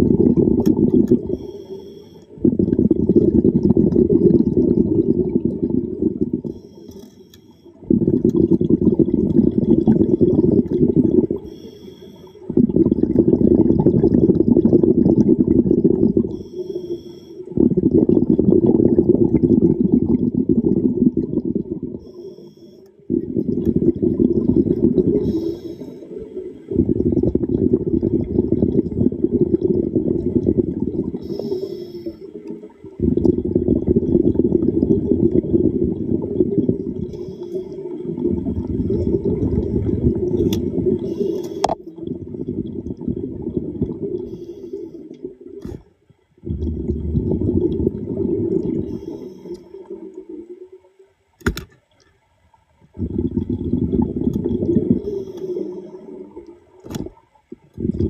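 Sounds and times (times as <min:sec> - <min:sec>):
exhaled bubbles underwater: 0:00.0 - 0:07.0, 0:07.7 - 0:51.4, 0:52.2 - 0:58.0
sharp clicks: 0:51.4 - 0:51.9.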